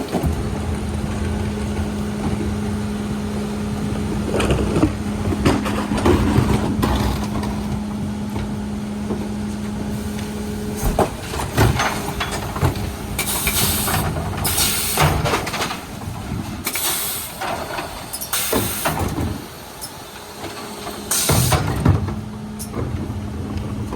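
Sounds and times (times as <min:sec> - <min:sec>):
truck engine hum: 0:00.0 - 0:23.9
air hissing: 0:13.1 - 0:15.2.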